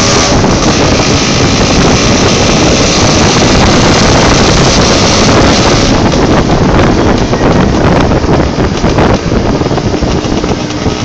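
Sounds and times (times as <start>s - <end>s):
motorcycle engine: 0.0s - 11.0s
road noise: 0.0s - 11.0s
wind rushing over microphone: 0.0s - 11.0s.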